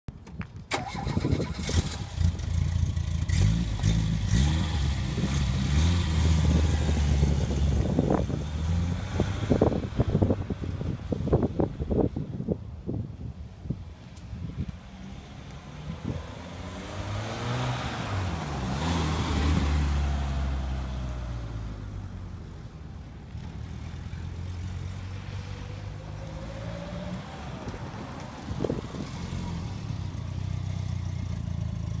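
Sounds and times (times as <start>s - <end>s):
car engine revving: 0.8s - 9.8s, 15.8s - 21.6s.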